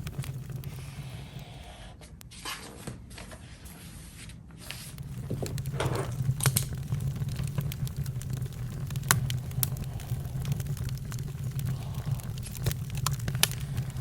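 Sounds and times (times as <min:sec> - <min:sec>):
low rumble: 0:00.0 - 0:01.8, 0:05.0 - 0:14.0
campfire crackling: 0:00.0 - 0:01.9, 0:04.7 - 0:14.0.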